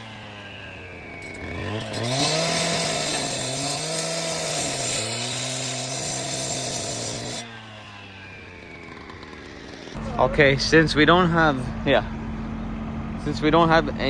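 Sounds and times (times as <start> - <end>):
concrete saw engine running: 0.0 - 14.0
saw cutting hiss: 1.2 - 7.6.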